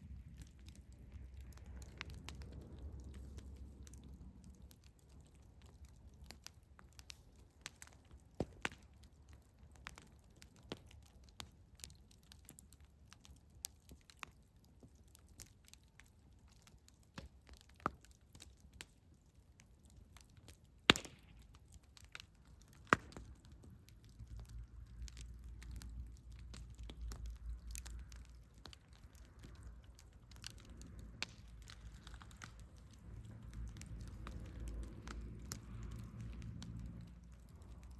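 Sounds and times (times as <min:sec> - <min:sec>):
low rumble: 0:00.0 - 0:04.7, 0:29.1 - 0:37.9
campfire crackling and popping: 0:00.0 - 0:37.9.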